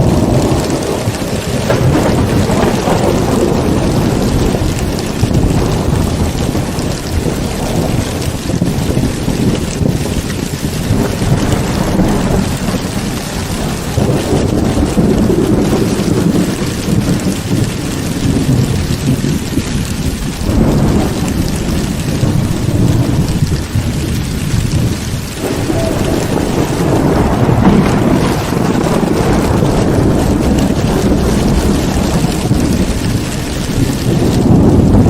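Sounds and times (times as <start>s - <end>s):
heavy rain pouring: 0.0s - 35.0s
thunder rumbling: 0.0s - 35.0s.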